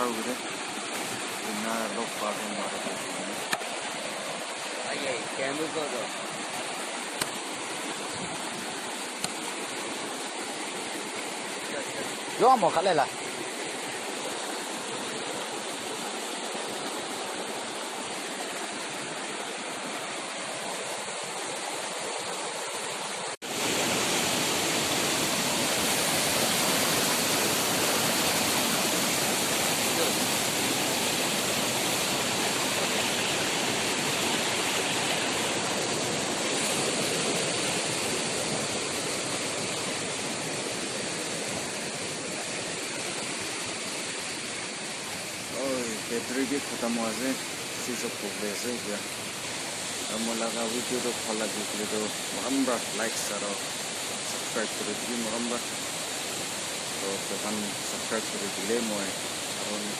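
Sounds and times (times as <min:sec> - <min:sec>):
flowing water rushing: 0:00.0 - 0:59.9.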